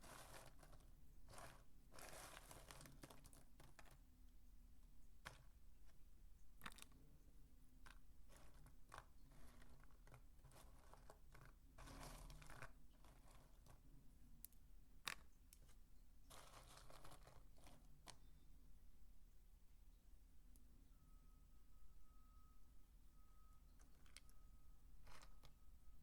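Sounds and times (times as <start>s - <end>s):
dry soap crunching: 0.0s - 4.0s, 7.8s - 13.9s, 15.0s - 18.2s, 25.0s - 25.6s.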